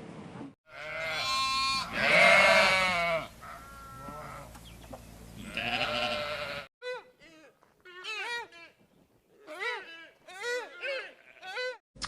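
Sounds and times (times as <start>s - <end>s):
livestock bleating: 0.7s - 4.6s, 5.4s - 6.7s, 9.4s - 11.8s.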